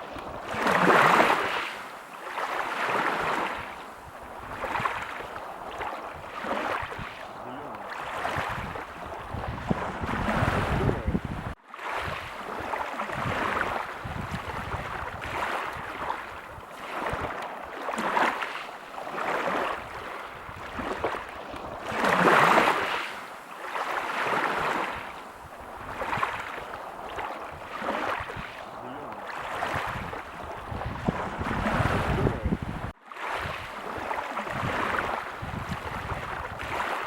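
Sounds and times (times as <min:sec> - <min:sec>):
ocean waves breaking: 0:00.0 - 0:37.0.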